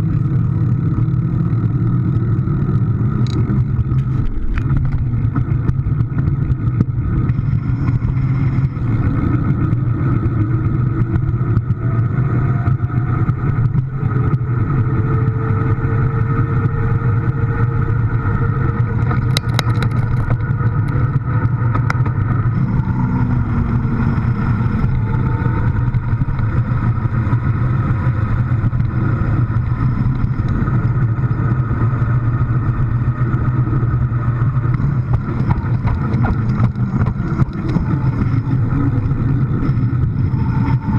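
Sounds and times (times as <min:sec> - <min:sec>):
faint whines: 0:00.0 - 0:40.9
vehicle engine droning: 0:00.0 - 0:40.9
clatter of clicks: 0:02.1 - 0:09.9, 0:18.8 - 0:22.3, 0:34.6 - 0:40.9.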